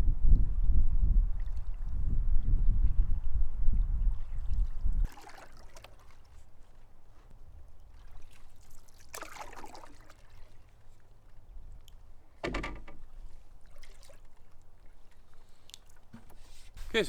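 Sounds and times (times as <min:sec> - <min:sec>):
paddle splashing in water: 0:04.3 - 0:17.0.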